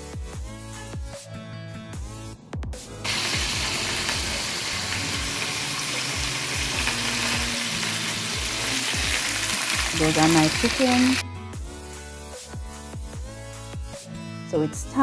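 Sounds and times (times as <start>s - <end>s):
background music: 0.0s - 15.0s
chicken deep-frying in oil: 3.0s - 11.2s.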